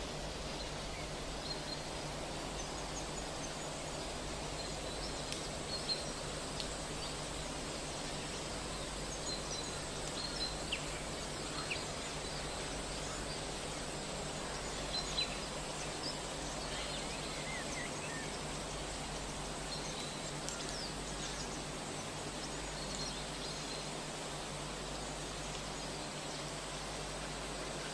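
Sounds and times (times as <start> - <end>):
steady hiss and low hum: 0.0 - 27.9.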